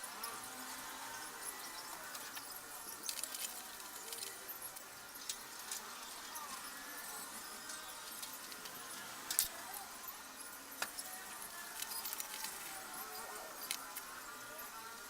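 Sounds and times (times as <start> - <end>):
faint scattered clicks: 0.1 - 15.0.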